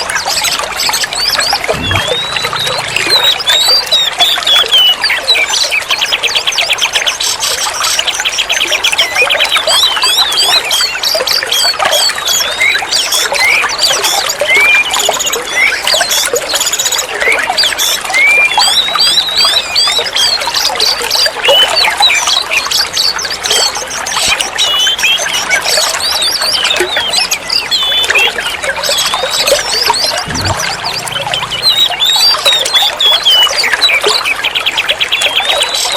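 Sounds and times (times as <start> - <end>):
songbird whistles and trills: 0.0 - 6.5.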